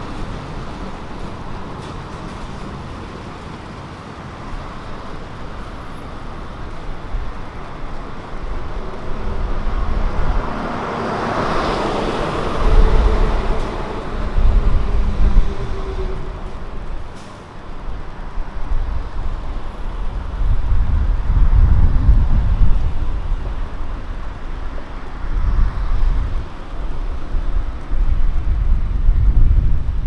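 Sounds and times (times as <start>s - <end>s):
street traffic: 0.0s - 30.0s
vehicle passing close by: 7.7s - 17.2s.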